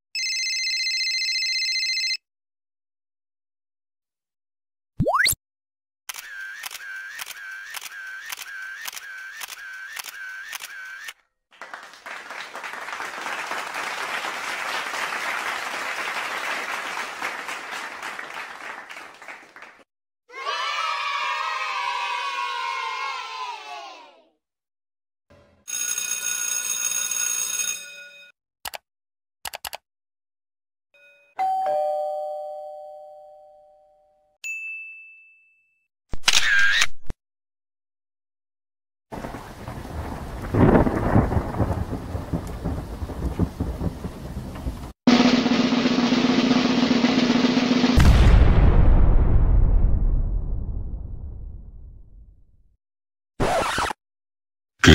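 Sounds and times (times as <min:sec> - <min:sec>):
camera shutter clicks: 0:06.1 - 0:11.2, 0:36.2 - 0:37.0
crowd applauding: 0:11.5 - 0:19.9
computer mouse clicking: 0:29.5 - 0:29.8
ding-dong chime: 0:31.0 - 0:35.8
high ding: 0:31.0 - 0:35.8.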